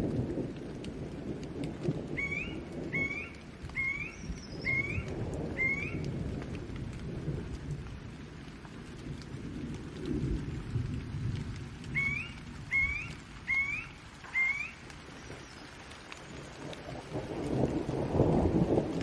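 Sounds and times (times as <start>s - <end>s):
low rolling thunder: 0.0s - 15.4s, 16.0s - 19.0s
steady rain: 0.0s - 19.0s
bird chirping: 2.2s - 6.0s, 12.0s - 15.7s.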